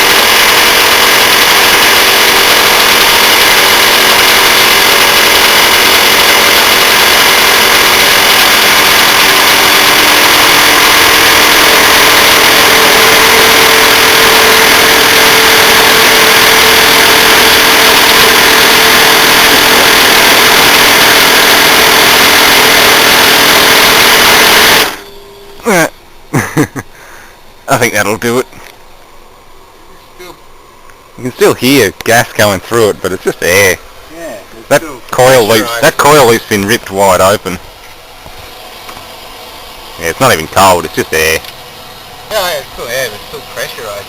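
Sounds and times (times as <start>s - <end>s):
steady tone: 0.0s - 26.4s
machinery running with hiss: 0.0s - 27.8s.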